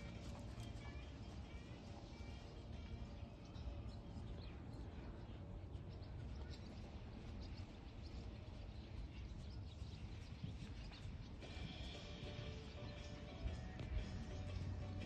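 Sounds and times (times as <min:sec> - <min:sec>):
low outdoor rumble: 0:00.0 - 0:15.0
faint bird chirps: 0:02.1 - 0:13.2.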